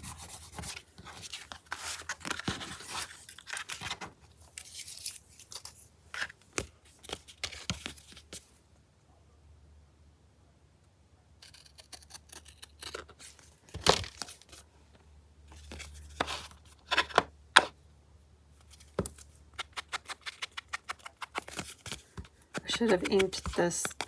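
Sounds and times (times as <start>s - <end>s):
paper rustling: 0.0s - 8.5s, 18.6s - 24.0s.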